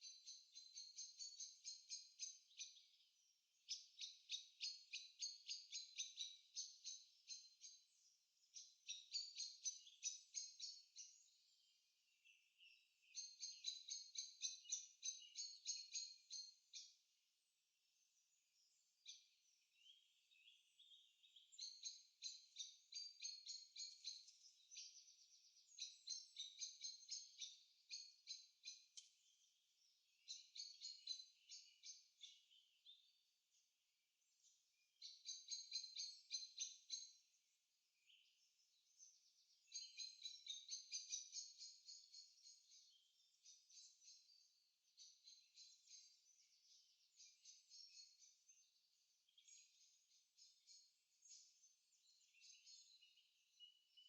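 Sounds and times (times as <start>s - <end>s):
songbirds trilling faintly: 0.0s - 54.0s.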